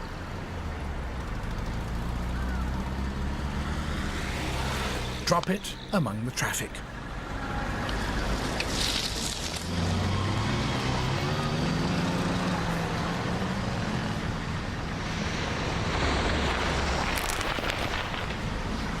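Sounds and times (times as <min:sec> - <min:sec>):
road noise hum: 0:00.0 - 0:19.0
vehicle engine: 0:00.6 - 0:19.0
cars driving past: 0:01.5 - 0:19.0.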